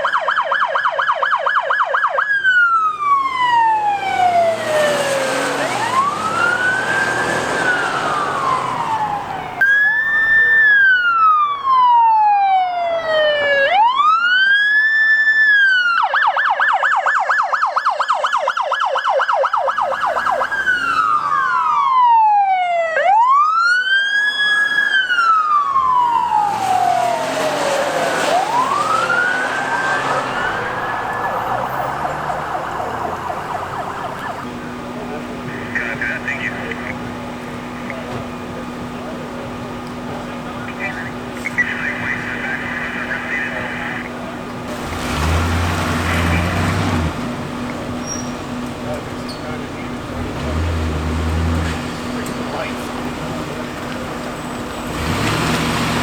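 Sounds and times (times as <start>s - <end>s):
police sirens wailing and yelping: 0.0s - 56.0s.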